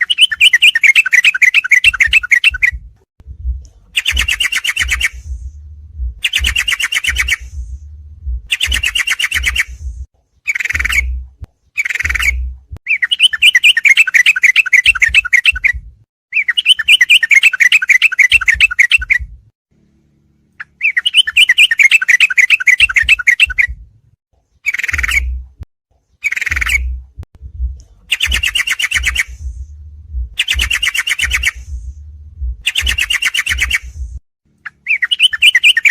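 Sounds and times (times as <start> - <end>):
bird chattering and trilling: 0.0 - 2.8, 4.0 - 5.4, 6.2 - 7.6, 8.5 - 9.8, 10.4 - 19.2, 20.6 - 23.7, 24.6 - 25.4, 26.2 - 27.0, 28.1 - 29.5, 30.3 - 31.7, 32.6 - 34.0, 34.6 - 35.9.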